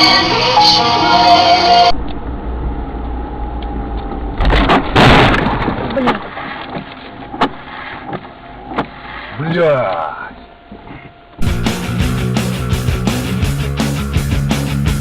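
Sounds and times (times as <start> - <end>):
loud car collision: 4.1 - 9.0.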